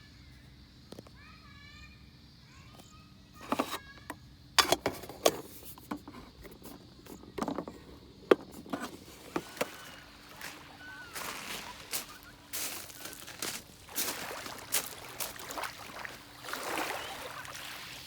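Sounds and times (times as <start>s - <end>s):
objects clicking and knocking: 3.4s - 3.8s, 4.6s - 10.0s.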